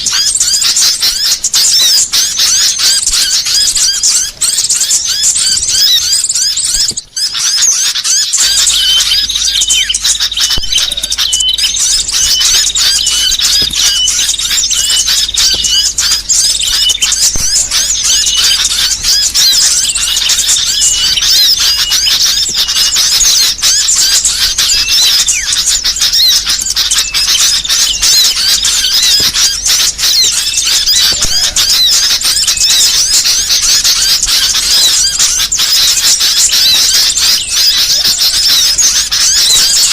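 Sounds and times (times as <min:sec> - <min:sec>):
birds chirping and trilling: 0:00.0 - 0:39.9
low steady hum: 0:08.2 - 0:35.7.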